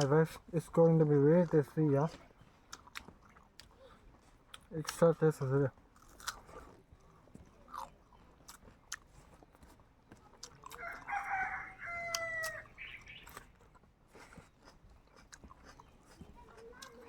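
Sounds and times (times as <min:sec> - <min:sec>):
chewing clicks: 0:02.7 - 0:05.1, 0:05.9 - 0:17.0
rooster crowing: 0:10.7 - 0:12.8.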